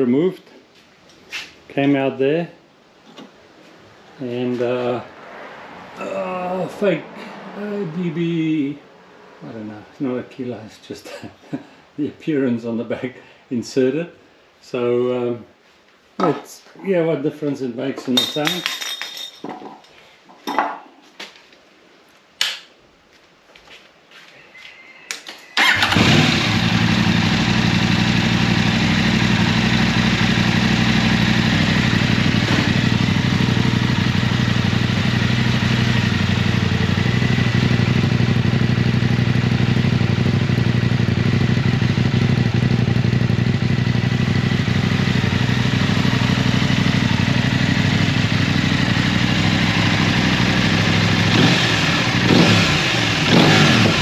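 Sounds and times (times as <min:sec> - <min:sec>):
motorcycle engine starting and idling: 0:25.6 - 0:54.0.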